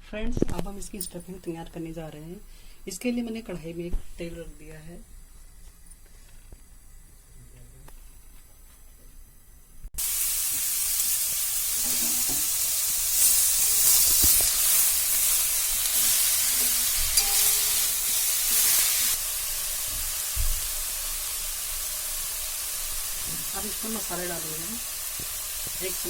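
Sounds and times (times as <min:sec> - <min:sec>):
hot oil sizzling loudly: 0:10.0 - 0:26.0.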